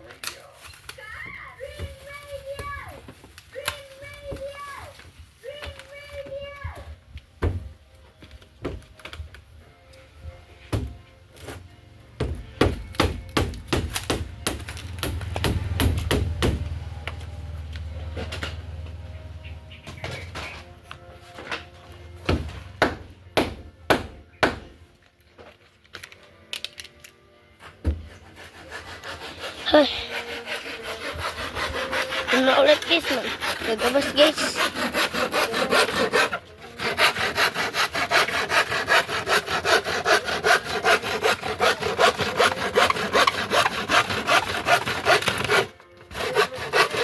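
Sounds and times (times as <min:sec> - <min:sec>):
faint background music: 0:00.0 - 0:47.0
carpentry knocks and thuds: 0:07.4 - 0:07.8, 0:08.6 - 0:08.9, 0:10.7 - 0:11.0, 0:12.2 - 0:16.8, 0:22.2 - 0:24.8, 0:27.8 - 0:28.1.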